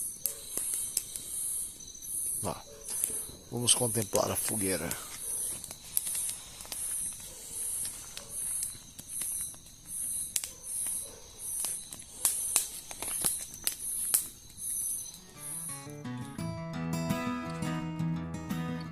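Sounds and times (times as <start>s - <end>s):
insect chirping: 0.0s - 16.4s
campfire crackling and popping: 0.0s - 16.5s.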